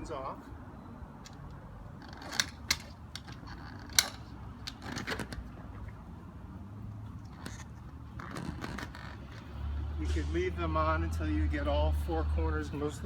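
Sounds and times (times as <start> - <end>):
rustling and rubbing: 7.1 - 9.6.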